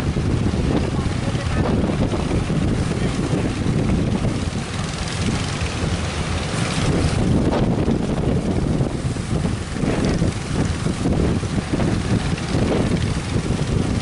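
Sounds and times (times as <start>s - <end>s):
breaking surf: 0.0s - 14.0s
wind buffeting microphone: 0.0s - 14.0s.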